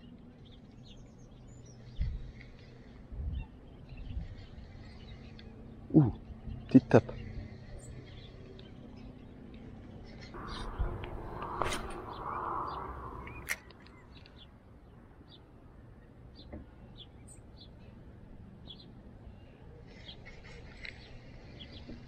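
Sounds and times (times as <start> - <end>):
small birds chirping: 0.0 - 22.0
fishing rod rustle and clicks: 20.3 - 21.8.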